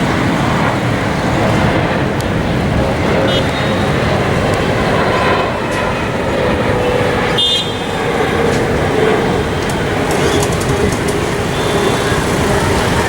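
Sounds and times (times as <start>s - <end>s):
loud vehicle noise: 0.0s - 13.0s
high horn toot: 3.2s - 4.0s, 6.8s - 8.2s, 9.7s - 13.0s.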